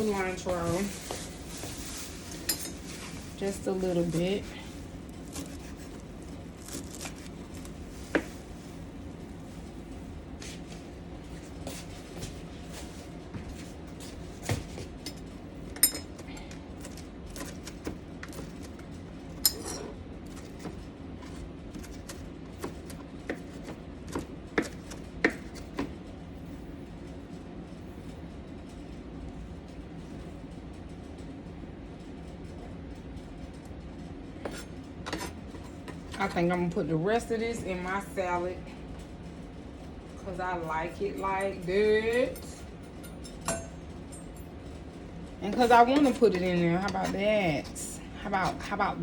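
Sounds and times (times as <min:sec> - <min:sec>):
kitchen utensils clinking: 0:00.0 - 0:04.7, 0:19.4 - 0:20.0, 0:45.5 - 0:48.8
low background hum: 0:00.0 - 0:49.0.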